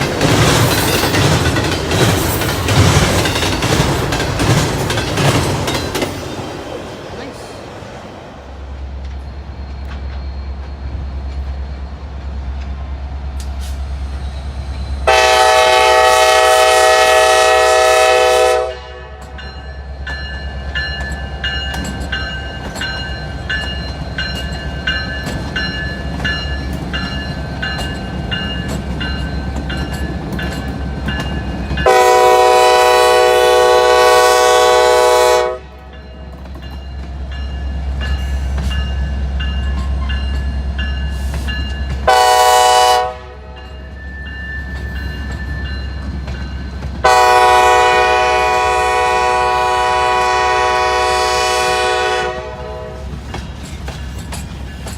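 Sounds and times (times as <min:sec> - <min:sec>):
train rumble: 0:00.0 - 0:54.9
locomotive air horn blasts: 0:15.0 - 0:19.3, 0:31.8 - 0:35.9, 0:42.1 - 0:43.6, 0:47.0 - 0:53.1.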